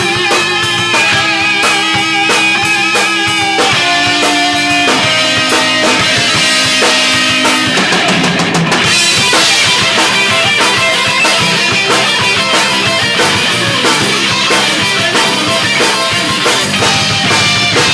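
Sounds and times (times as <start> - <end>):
drum kit beat: 0.0 - 17.9
guitars holding long notes: 0.0 - 17.9.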